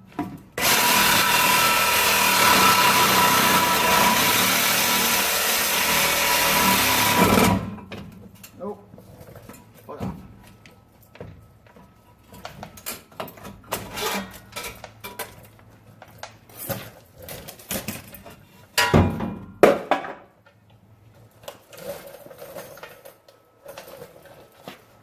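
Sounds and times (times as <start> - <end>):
metallic clanks and scrapes: 12.3 - 15.6.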